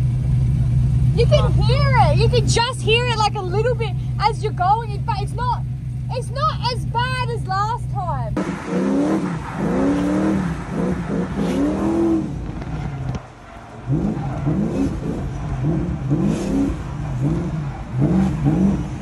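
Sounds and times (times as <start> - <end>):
car engine revving: 8.3 - 19.0.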